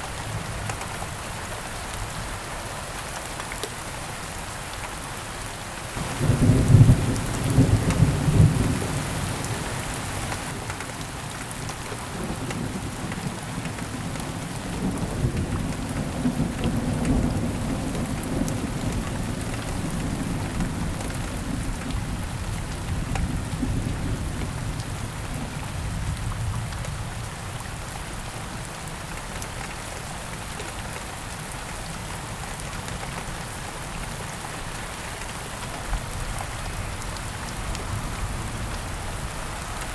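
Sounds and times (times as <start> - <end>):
steady rain: 0.0 - 39.9
thunder clap and rumble: 6.0 - 10.5.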